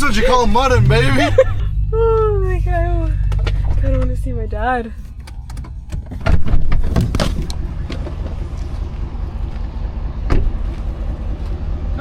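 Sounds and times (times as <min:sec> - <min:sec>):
off-road vehicle engine in mud: 0:00.0 - 0:12.0
sharp knocks and thumps: 0:05.0 - 0:08.4.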